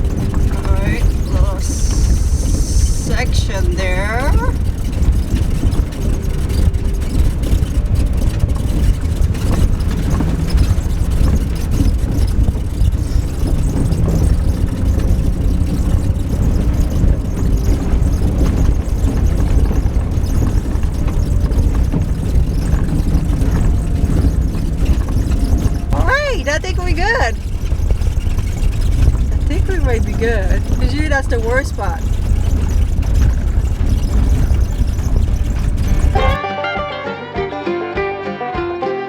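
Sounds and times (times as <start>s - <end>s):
van engine and tyres rumbling: 0.0s - 36.4s.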